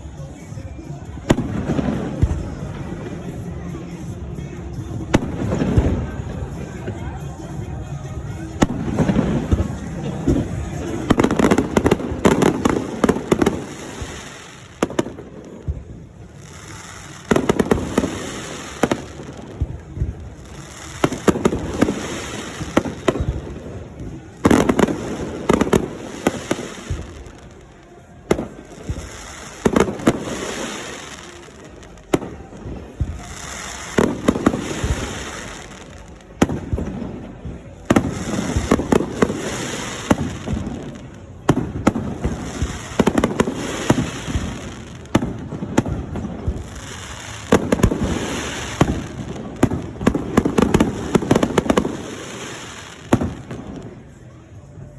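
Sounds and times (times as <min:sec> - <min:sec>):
fireworks bursting and crackling: 0:00.0 - 0:54.8.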